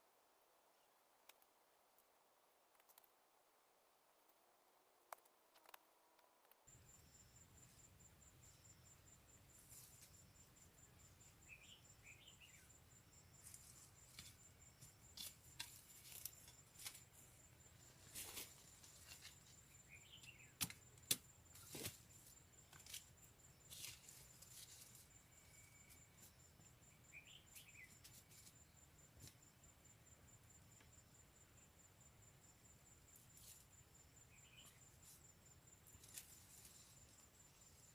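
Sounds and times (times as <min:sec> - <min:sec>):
high insect trill: 0:06.7 - 0:37.9
bird chirping calls: 0:11.4 - 0:12.7, 0:19.8 - 0:20.6
rustling: 0:13.3 - 0:17.3, 0:35.9 - 0:37.9.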